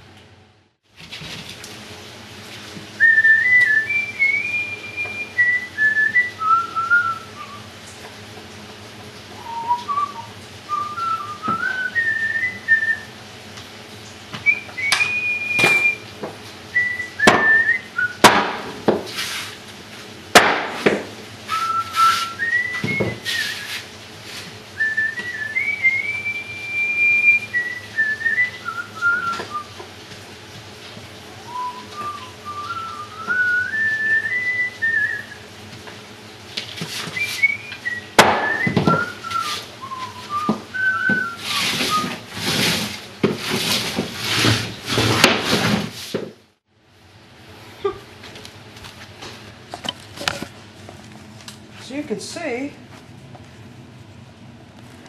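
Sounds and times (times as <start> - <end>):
person whistling a tune: 3.0 - 7.7, 9.4 - 13.1, 14.4 - 16.0, 16.8 - 18.2, 21.5 - 23.8, 24.8 - 29.7, 31.4 - 35.4, 37.1 - 42.2
sharp knocks: 18.2 - 19.1, 20.4 - 21.1.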